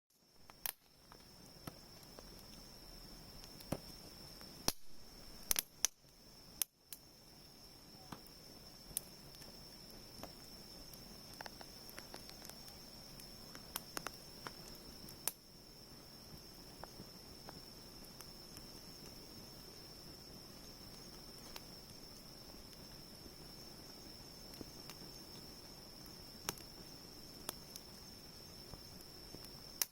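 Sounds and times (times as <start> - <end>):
bonfire crackling and popping: 0.1 - 29.9
soft steady hiss: 0.1 - 29.9.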